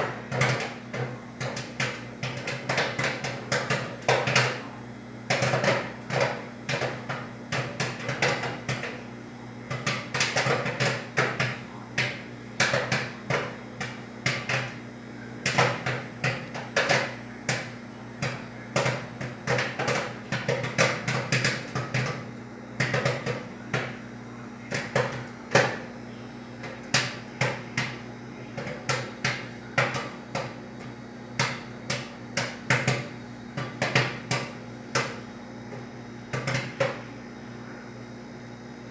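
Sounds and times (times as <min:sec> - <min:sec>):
microwave oven humming: 0:00.0 - 0:38.9
sharp pops inside microwave: 0:31.4 - 0:35.2.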